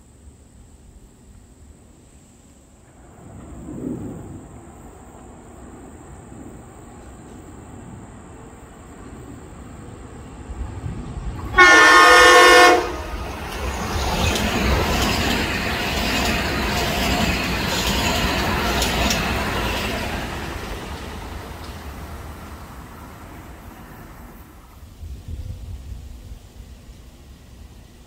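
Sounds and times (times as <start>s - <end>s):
train wheels on rails: 0.7s - 28.0s
train horn blast: 11.4s - 13.2s.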